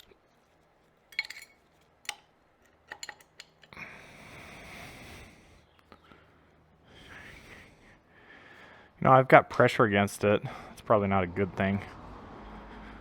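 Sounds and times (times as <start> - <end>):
metal tools clinking: 1.1 - 3.8.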